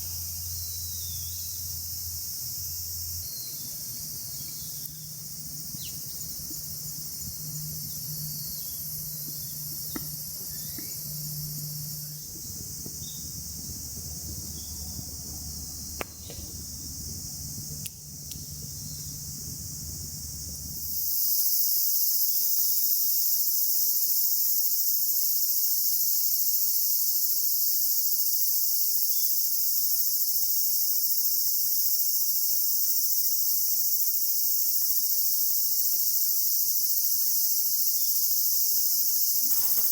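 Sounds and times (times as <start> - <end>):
insects chirring: 0.0 - 39.9
light knocks: 9.2 - 11.0, 16.0 - 16.6.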